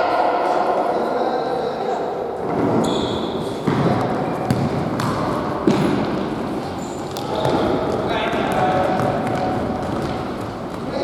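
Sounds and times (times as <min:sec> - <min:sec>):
players running in sports hall: 0:02.5 - 0:11.0.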